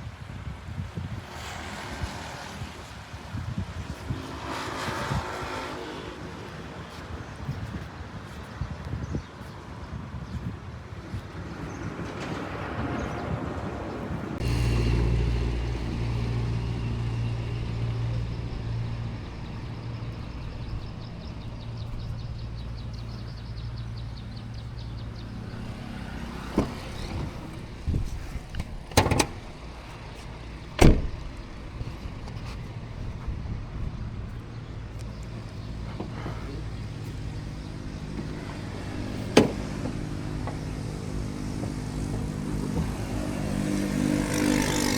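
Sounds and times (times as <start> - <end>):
car engine humming: 14.4 - 44.9
sharp knocks: 35.9 - 43.4.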